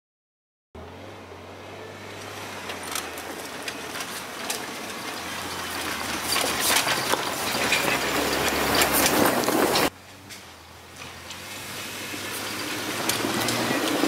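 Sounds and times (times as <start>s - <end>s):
car engine running: 0.8s - 14.0s
clicks and rattles: 2.6s - 10.4s, 12.9s - 14.0s.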